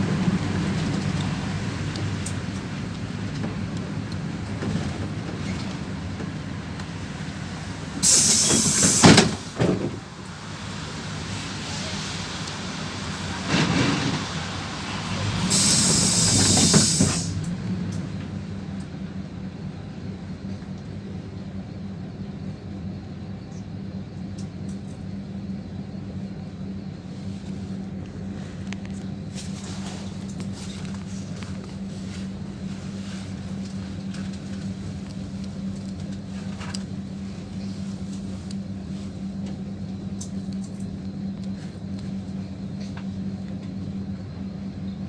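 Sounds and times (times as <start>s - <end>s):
bus engine humming: 0.0s - 45.0s
compressed air hissing: 8.0s - 9.5s, 15.4s - 17.4s.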